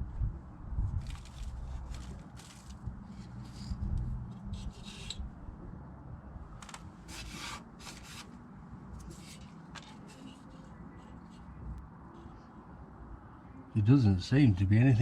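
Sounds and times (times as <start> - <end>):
parts scraping and rustling: 0.9 - 5.3, 6.5 - 11.6.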